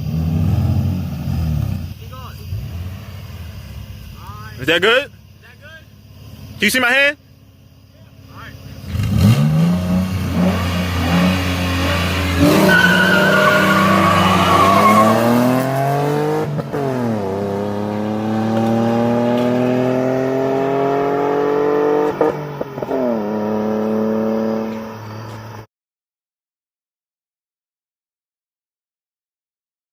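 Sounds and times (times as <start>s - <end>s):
car engine revving and accelerating: 0.0s - 4.0s, 8.6s - 25.6s
tyre squeal: 10.6s - 15.6s.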